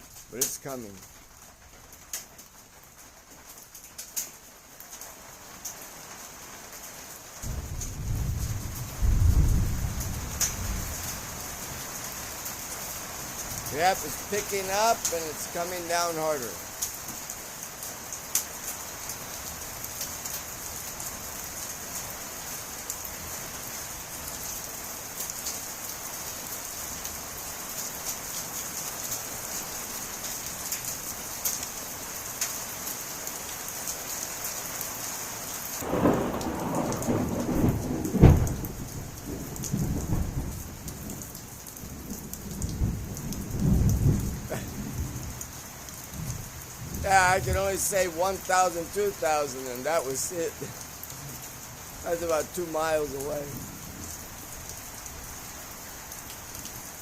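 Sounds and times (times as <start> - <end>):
heavy rain with hail: 0.0 - 57.0
thunder crack and rumble: 7.4 - 11.3, 35.8 - 45.4, 46.2 - 47.8.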